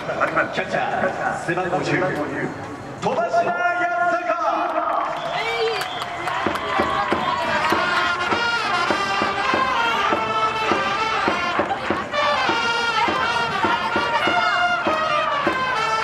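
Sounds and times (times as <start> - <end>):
steady drumbeat: 6.2 - 16.0
trumpets playing melody: 7.3 - 16.0.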